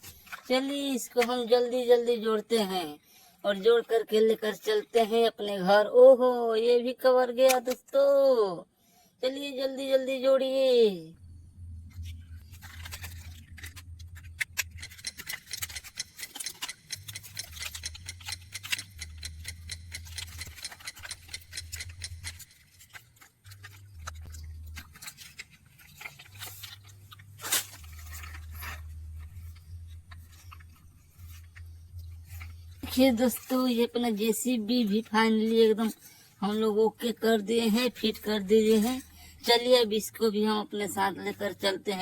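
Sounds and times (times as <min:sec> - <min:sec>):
low hum: 0:11.1 - 0:15.7, 0:17.0 - 0:34.1
plastic toy parts clicking: 0:12.6 - 0:28.8.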